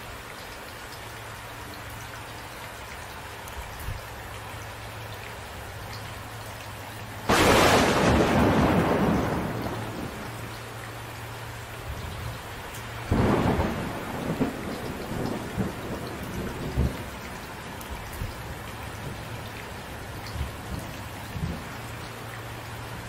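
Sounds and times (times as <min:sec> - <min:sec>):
steady rain falling: 0:00.0 - 0:23.0
thunderclap rumbling: 0:07.3 - 0:10.5, 0:13.1 - 0:17.2.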